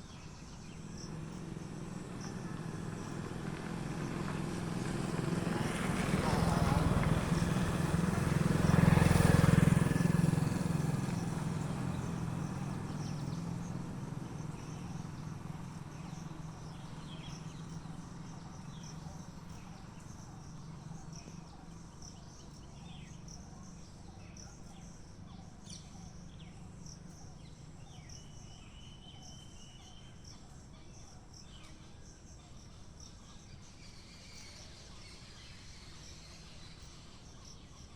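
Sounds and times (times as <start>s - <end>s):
engine passing: 0.9s - 19.0s.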